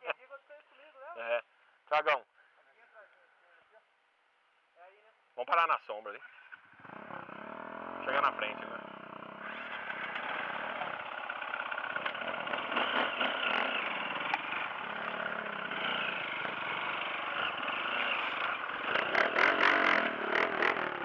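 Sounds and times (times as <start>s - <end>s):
dirt bike engine running: 6.7s - 21.0s.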